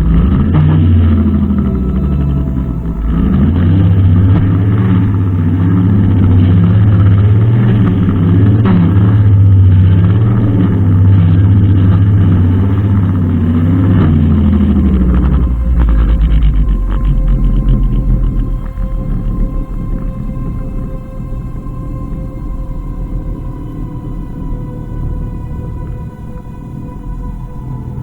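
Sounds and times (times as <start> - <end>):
brushcutter engine running: 0.0 - 22.1.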